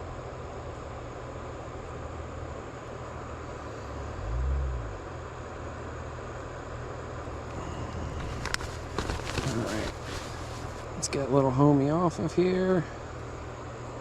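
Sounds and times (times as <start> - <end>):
creek water flowing: 7.2 - 13.9.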